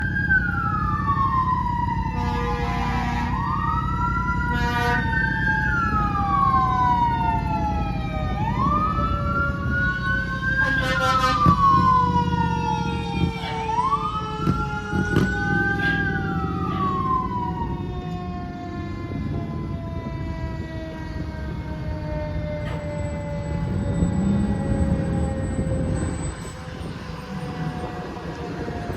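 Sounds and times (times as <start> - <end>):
diesel engines rumbling: 0.0 - 28.9
electronic wail siren: 0.0 - 28.9
air horn blasts: 2.1 - 3.4, 4.5 - 5.2, 10.6 - 11.9, 13.2 - 14.0, 15.1 - 17.2
mechanical siren winding down: 3.0 - 28.9.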